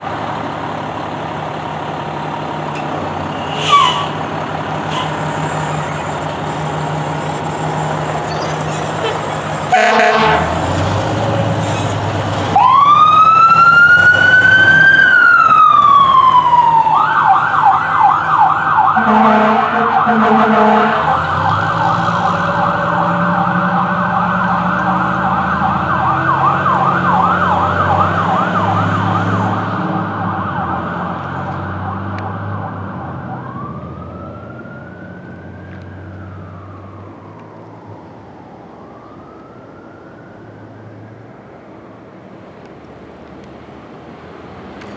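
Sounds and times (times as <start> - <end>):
truck engine rumble: 0.0 - 14.8
fire engine siren: 0.2 - 42.4
horn blasts: 2.8 - 4.2, 4.9 - 6.7, 8.5 - 10.7.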